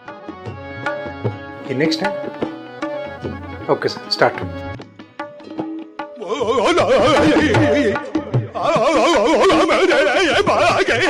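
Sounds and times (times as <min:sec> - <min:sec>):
tabla drum beat: 0:00.4 - 0:11.0
wavering melody with vibrato: 0:01.6 - 0:04.8.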